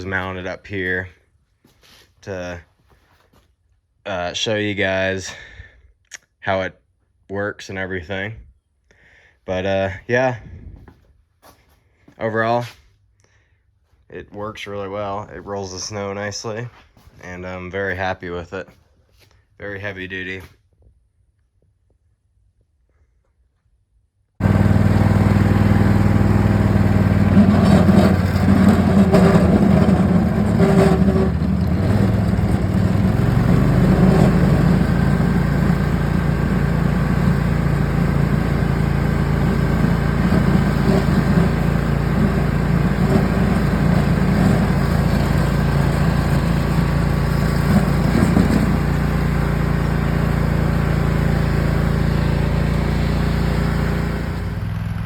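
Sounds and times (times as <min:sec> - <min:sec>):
lawn tractor engine running: 0:24.4 - 0:55.0.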